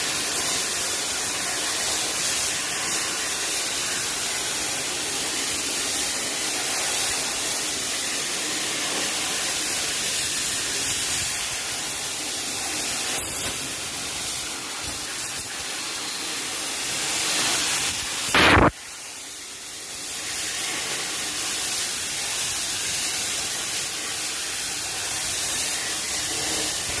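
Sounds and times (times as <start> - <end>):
steady hiss: 0.0 - 27.0
loud short burst: 18.3 - 18.8.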